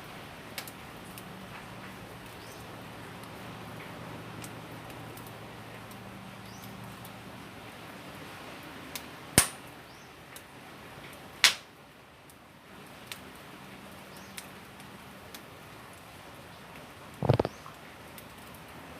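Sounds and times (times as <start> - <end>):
wood fire crackling: 0.0 - 18.9
loud sharp pops: 9.4 - 9.6, 11.4 - 11.7.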